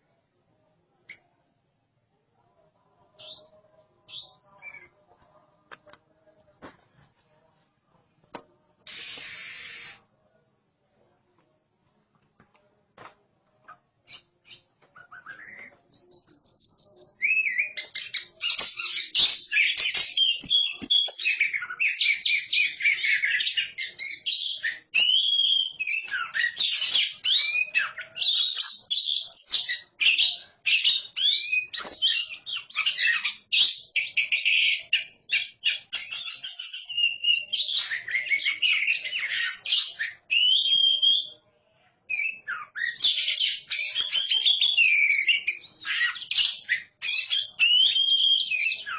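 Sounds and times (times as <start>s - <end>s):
birds singing whistles and chatter: 3.2s - 5.0s, 8.7s - 10.1s, 14.0s - 41.4s, 42.1s - 48.9s.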